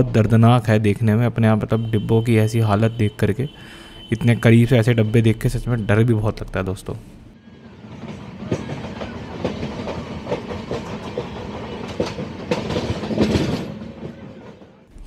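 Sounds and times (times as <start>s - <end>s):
train coach running noise: 7.4s - 15.0s.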